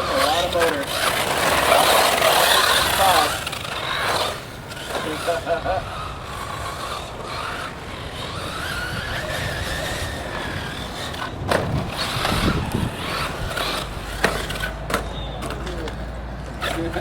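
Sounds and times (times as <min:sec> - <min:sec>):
electric motor whining: 0:00.0 - 0:17.0
tyres running over dirt: 0:00.0 - 0:17.0
heavy rumble: 0:05.7 - 0:15.5.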